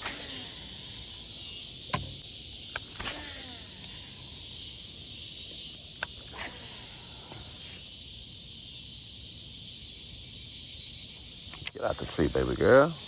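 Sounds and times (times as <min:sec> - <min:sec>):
insects chirping: 0:00.0 - 0:13.0
sharp clicks: 0:01.8 - 0:03.6, 0:11.5 - 0:11.8.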